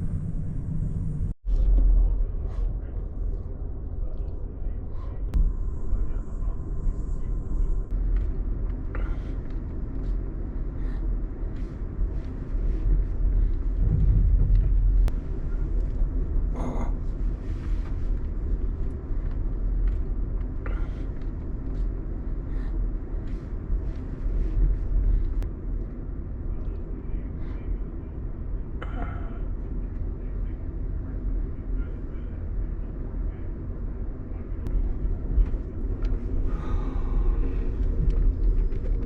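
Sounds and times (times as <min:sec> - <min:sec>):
passenger train rumble: 0:00.0 - 0:25.5, 0:26.4 - 0:39.0.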